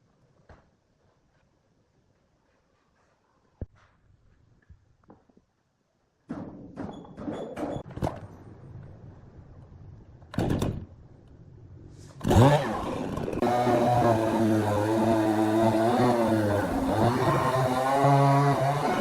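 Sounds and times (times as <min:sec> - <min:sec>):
machine motor drone: 0:12.3 - 0:19.0.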